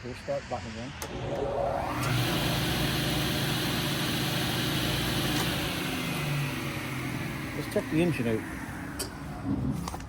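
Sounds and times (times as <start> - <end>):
table saw whirring: 0.9 - 9.2.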